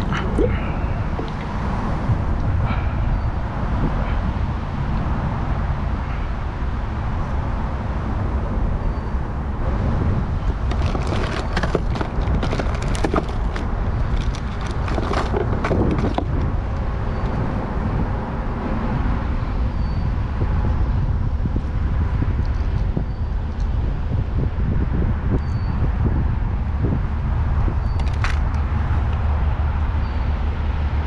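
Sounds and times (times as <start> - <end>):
wind on microphone: 0.0 - 31.0
sharp clicks and rattles: 10.6 - 16.5.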